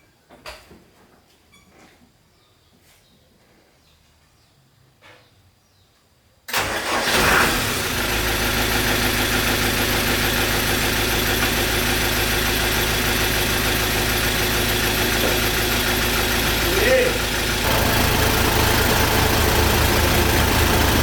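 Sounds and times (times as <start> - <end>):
old truck engine starting and idling: 6.5 - 21.0.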